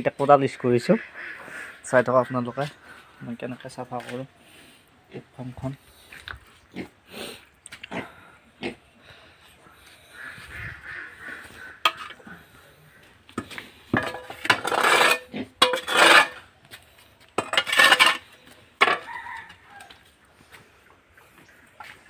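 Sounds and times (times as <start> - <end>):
metal hoe scraping floor: 11.8 - 12.2, 13.4 - 16.8, 17.4 - 19.1.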